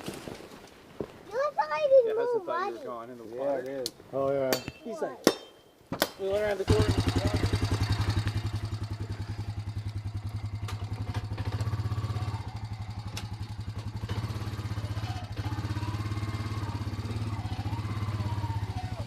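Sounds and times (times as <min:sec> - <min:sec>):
trail bike engine running: 0:06.4 - 0:19.0.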